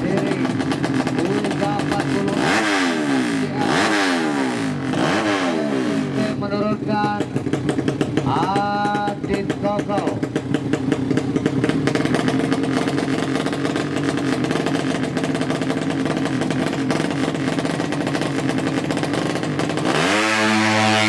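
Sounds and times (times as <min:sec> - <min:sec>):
motorcycle engine choppy idle: 0:00.0 - 0:21.0
engine revving sharply: 0:01.2 - 0:06.4, 0:19.8 - 0:21.0.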